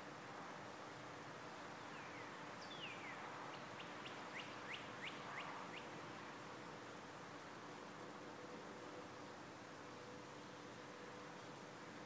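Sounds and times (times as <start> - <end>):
steady background hiss: 0.0 - 12.0
songbird singing: 1.4 - 6.0.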